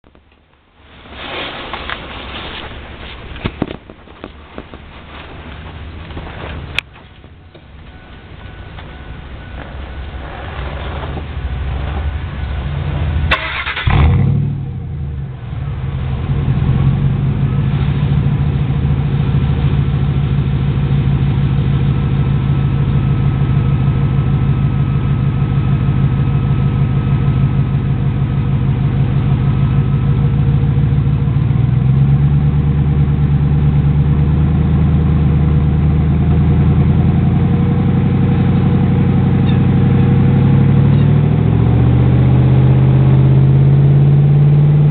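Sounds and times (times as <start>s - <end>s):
engine idling: 1.6s - 44.9s
engine cranking and starting: 13.3s - 14.5s.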